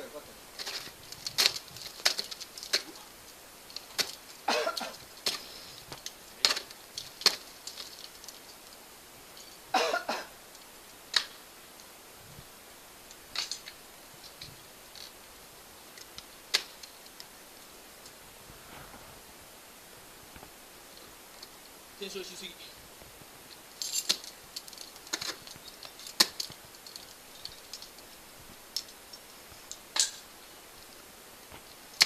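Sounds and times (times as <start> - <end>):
ice axes striking ice: 0.6 - 3.1, 3.7 - 8.5, 11.1 - 11.4, 16.0 - 16.9, 23.8 - 27.9, 29.8 - 30.3.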